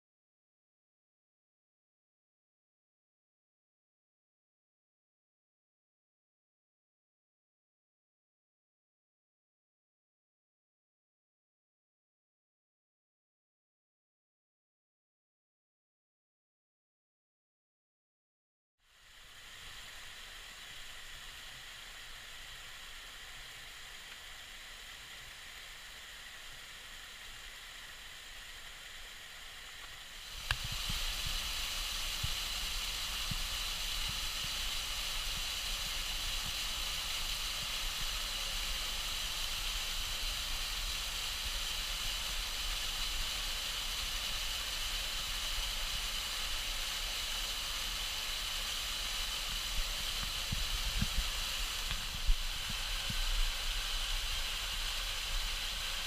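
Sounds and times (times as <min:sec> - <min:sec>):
waterfall rushing: 0:19.4 - 0:56.0.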